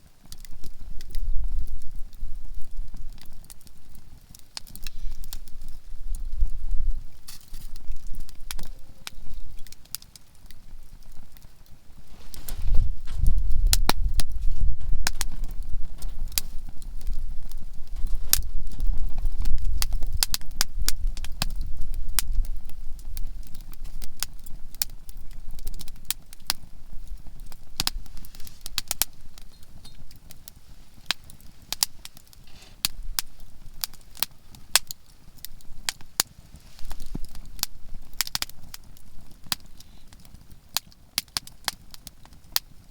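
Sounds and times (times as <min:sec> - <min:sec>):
campfire crackling and popping: 0:00.0 - 0:42.9
low rumble: 0:12.0 - 0:21.1.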